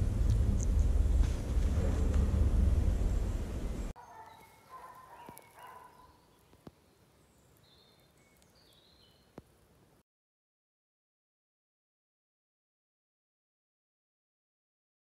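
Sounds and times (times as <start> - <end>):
low rumble: 0.0 - 4.0
faint birdsong: 3.0 - 10.0.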